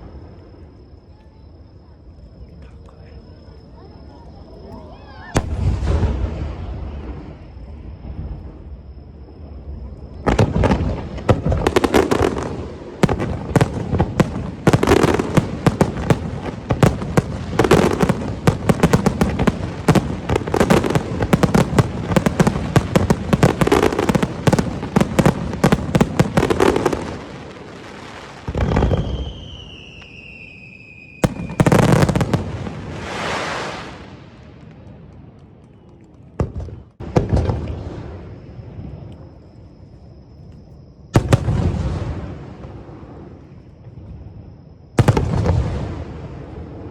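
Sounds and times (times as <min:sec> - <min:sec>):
falling firework whistle: 0:04.6 - 0:34.7
fireworks bursting and crackling: 0:05.3 - 0:07.5, 0:10.2 - 0:39.0, 0:41.2 - 0:43.5, 0:45.0 - 0:46.9.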